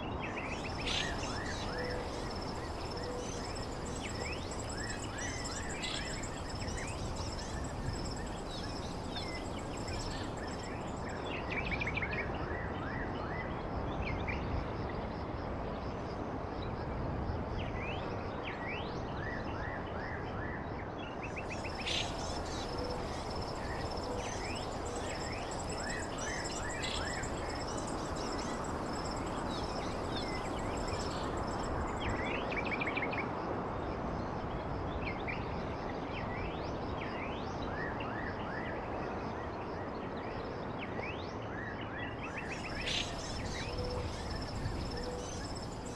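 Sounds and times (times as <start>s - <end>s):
blizzard wind: 0.0s - 19.1s, 20.6s - 37.0s, 42.3s - 45.9s
small birds chirping: 0.4s - 11.2s, 21.3s - 32.5s, 42.4s - 45.9s.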